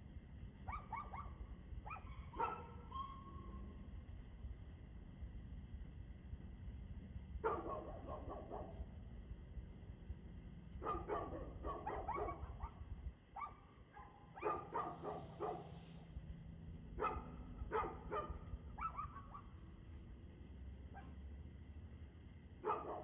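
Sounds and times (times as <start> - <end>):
dog barking: 0.6 - 3.6, 7.4 - 8.9, 10.8 - 12.8, 13.4 - 15.8, 17.0 - 19.6, 20.9 - 21.2, 22.6 - 23.0.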